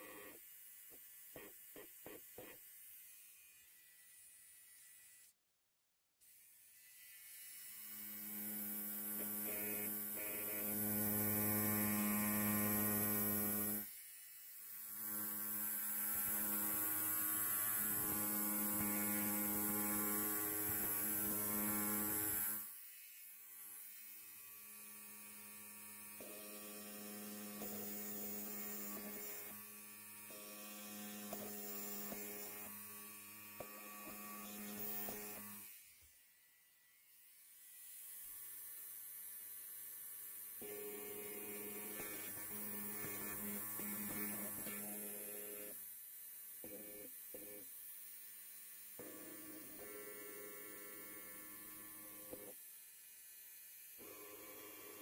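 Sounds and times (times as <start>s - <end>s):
electric hair clipper buzzing: 0.0s - 5.4s, 6.2s - 55.0s.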